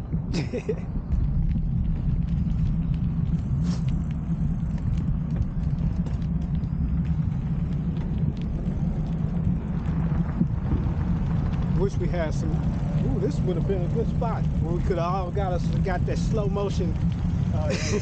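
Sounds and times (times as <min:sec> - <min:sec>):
low riding rumble: 0:00.0 - 0:18.0.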